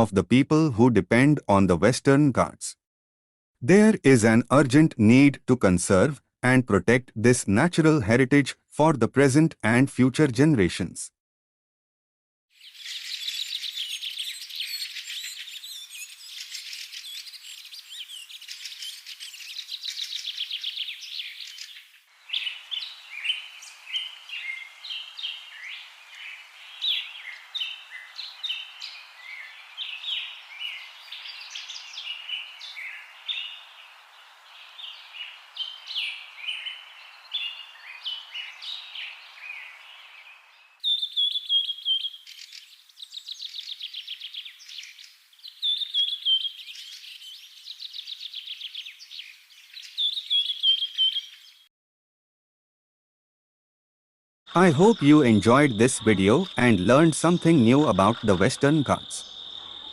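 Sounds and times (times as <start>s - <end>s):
birds chirping and trilling: 12.6s - 51.7s, 54.6s - 59.9s.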